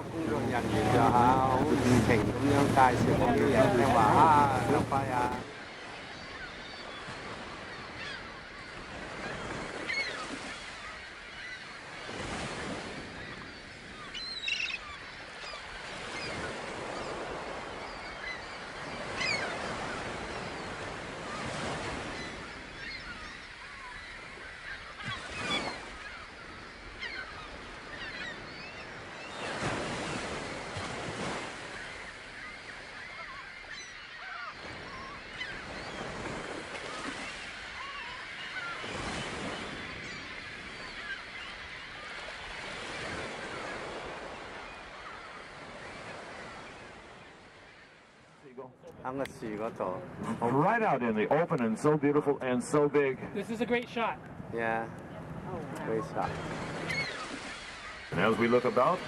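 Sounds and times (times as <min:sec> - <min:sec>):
water washing: 0:00.0 - 0:05.5, 0:58.1 - 0:59.0
gulls calling: 0:00.0 - 0:59.0
wind: 0:00.0 - 0:59.0.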